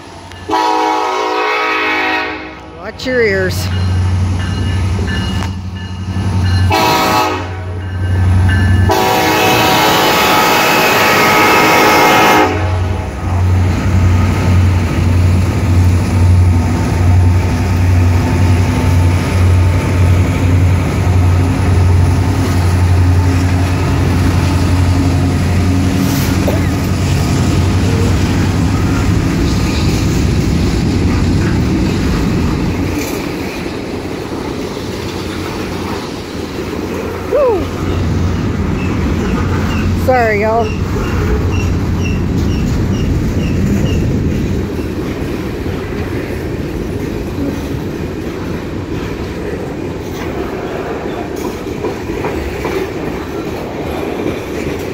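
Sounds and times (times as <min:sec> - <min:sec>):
diesel locomotive engines rumbling: 0:00.0 - 0:54.9
train air horn blowing: 0:00.5 - 0:02.6, 0:06.7 - 0:07.8, 0:08.9 - 0:13.0.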